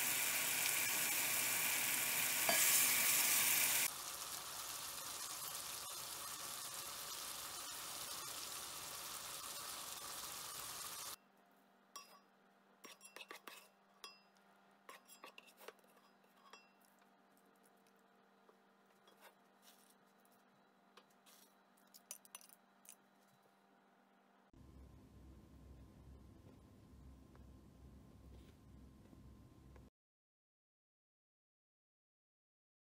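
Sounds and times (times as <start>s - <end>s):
food sizzling in a pan: 0.0s - 11.2s.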